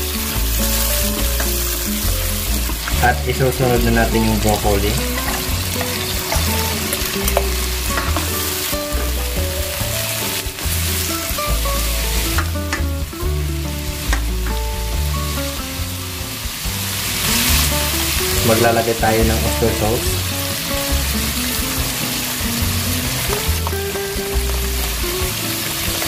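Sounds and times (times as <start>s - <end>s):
background music with bass: 0.0s - 26.0s
food sizzling in a pan: 0.0s - 26.0s
stirring clicks: 4.8s - 9.1s.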